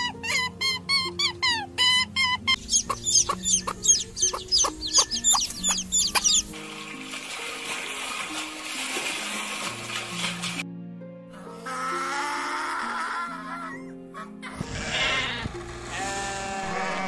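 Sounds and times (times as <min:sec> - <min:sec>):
background music: 0:00.0 - 0:17.0
chicken calling: 0:00.1 - 0:06.6.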